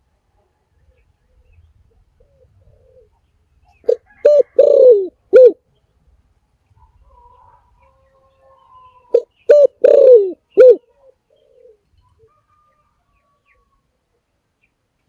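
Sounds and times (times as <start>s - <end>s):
dove cooing: 0.9s - 5.6s, 9.0s - 12.4s.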